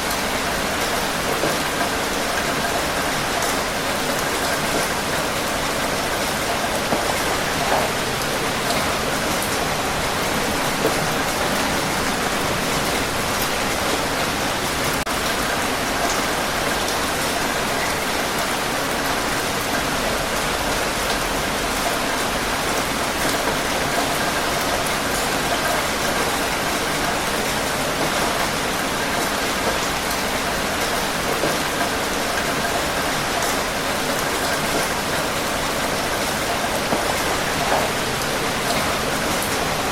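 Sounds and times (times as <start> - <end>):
rain falling: 0.0 - 39.9
raindrop taps: 6.5 - 14.8.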